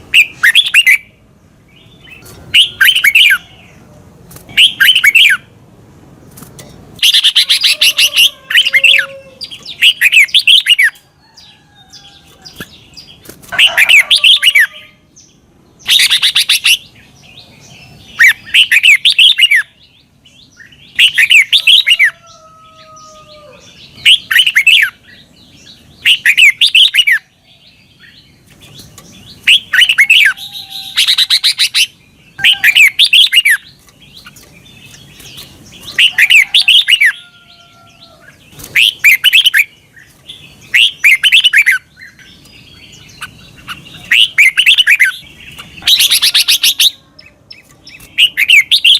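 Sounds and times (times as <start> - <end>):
bird warbling chirps: 1.9 - 3.8, 4.5 - 5.5, 20.6 - 48.9.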